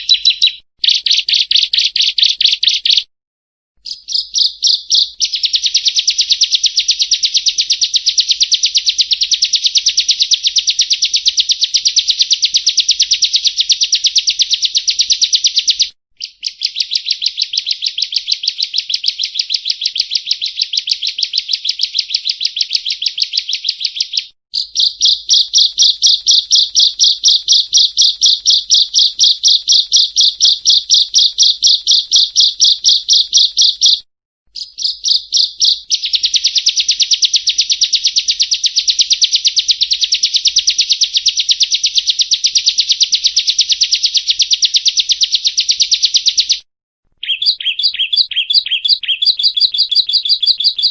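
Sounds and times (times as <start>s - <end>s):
bird rapid sharp chirps: 0.0s - 3.1s, 3.8s - 46.6s, 47.2s - 50.9s.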